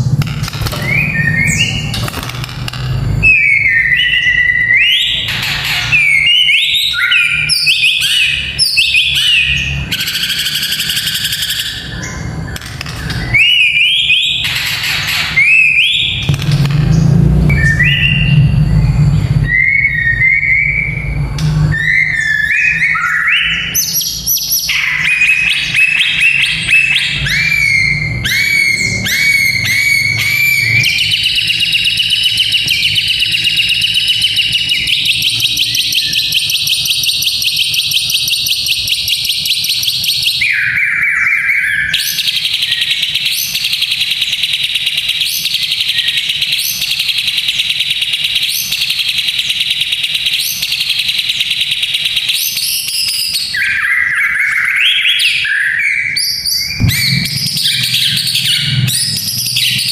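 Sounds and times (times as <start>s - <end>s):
bird buzzy rattle call: 0.0s - 7.7s, 8.5s - 17.1s
bird whistling song: 0.6s - 2.1s, 3.2s - 59.9s
low hum: 16.2s - 22.0s, 56.7s - 59.9s.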